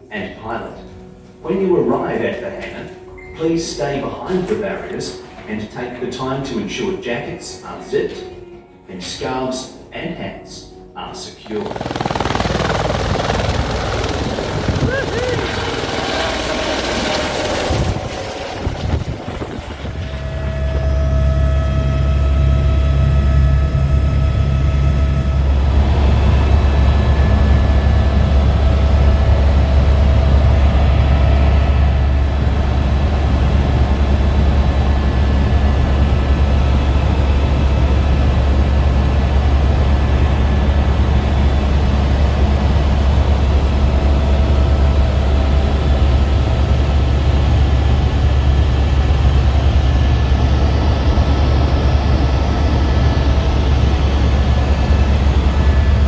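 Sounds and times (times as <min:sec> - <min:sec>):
helicopter turbine and rotor drone: 0:11.4 - 0:56.0.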